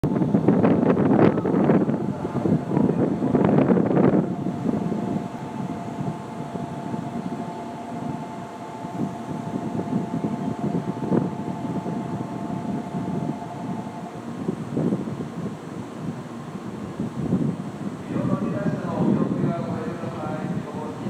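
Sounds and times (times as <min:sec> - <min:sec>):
train low rumble: 0:00.0 - 0:21.0
high steady tones: 0:01.1 - 0:16.9.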